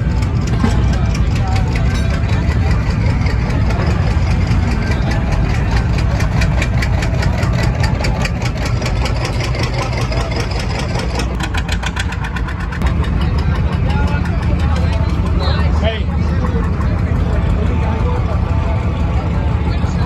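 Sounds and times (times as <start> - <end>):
tractor engine pulsing: 0.0 - 20.0.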